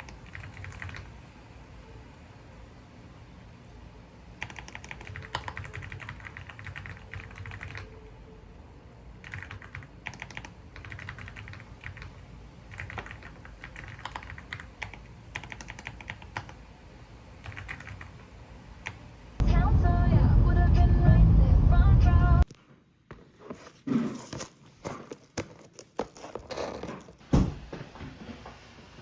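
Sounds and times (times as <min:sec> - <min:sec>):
keyboard typing: 0:00.0 - 0:01.2, 0:04.4 - 0:08.0, 0:09.2 - 0:16.6, 0:17.4 - 0:18.2.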